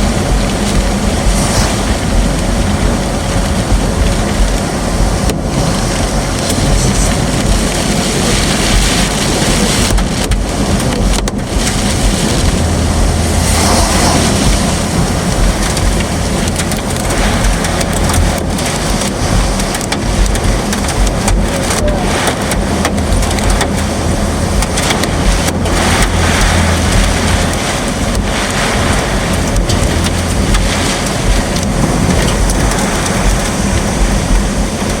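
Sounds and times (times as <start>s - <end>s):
car road and engine noise: 0.0s - 35.0s
heavy rain pelting a car: 0.0s - 35.0s.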